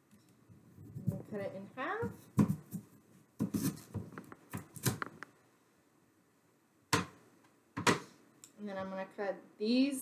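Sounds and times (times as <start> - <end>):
knife cutting potato on board: 3.4 - 5.1.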